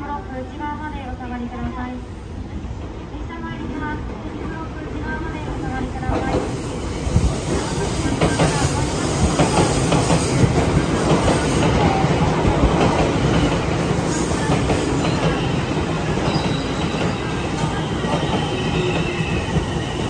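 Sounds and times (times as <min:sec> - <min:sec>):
train wheels clacking over rail joints: 0:07.2 - 0:15.5.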